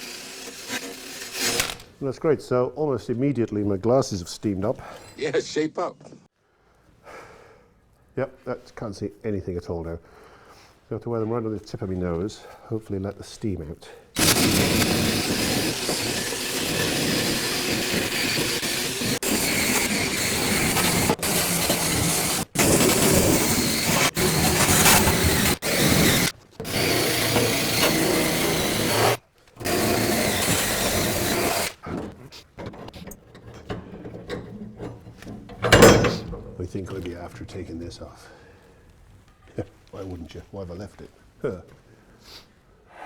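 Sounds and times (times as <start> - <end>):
power tool sanding filler: 0.0 - 1.8, 14.2 - 31.8.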